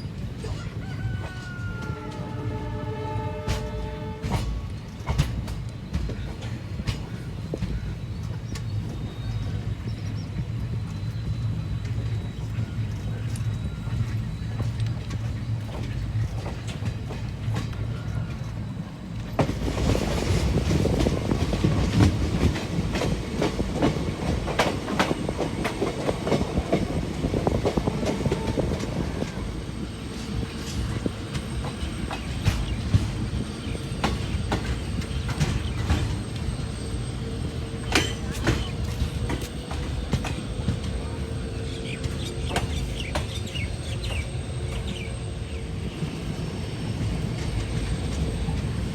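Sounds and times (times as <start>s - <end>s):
train wheels clattering on rails: 0.0s - 48.9s.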